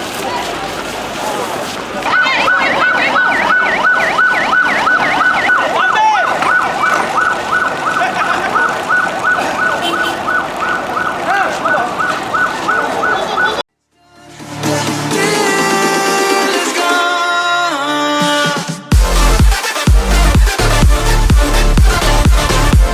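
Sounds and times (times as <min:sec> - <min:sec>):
siren yelping: 0:02.0 - 0:13.6.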